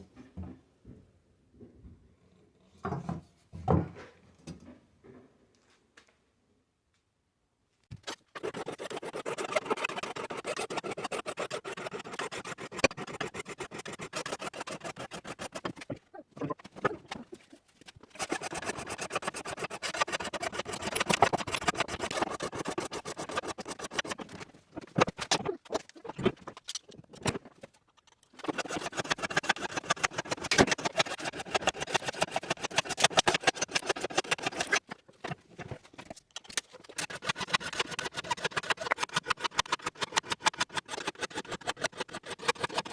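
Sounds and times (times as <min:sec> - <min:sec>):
hand tool rasping back and forth: 0:08.0 - 0:27.4, 0:28.0 - 0:35.4, 0:36.0 - 0:42.9.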